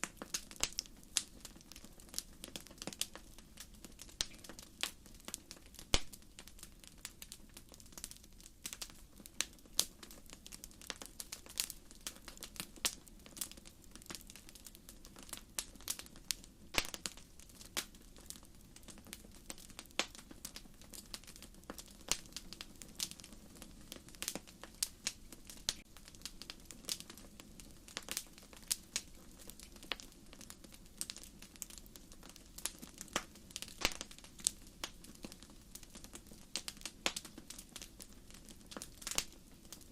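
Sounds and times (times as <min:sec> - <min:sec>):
firewood crackling and popping: 0:00.0 - 0:39.9.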